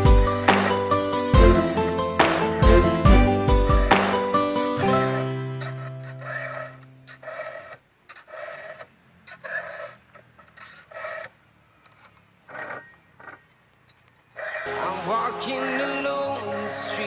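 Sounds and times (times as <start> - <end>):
file rasping on chainsaw chain: 5.6 - 13.5, 14.4 - 14.7.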